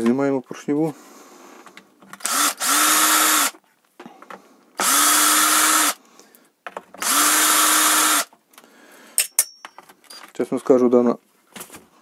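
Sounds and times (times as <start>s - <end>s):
electric drill-driver spinning: 2.2s - 3.6s, 4.8s - 6.0s, 7.0s - 8.3s.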